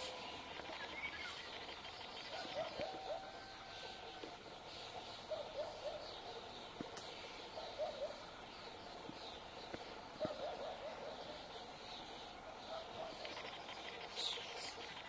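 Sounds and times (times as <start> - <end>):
faint ticks: 6.7 - 7.3, 13.1 - 15.0.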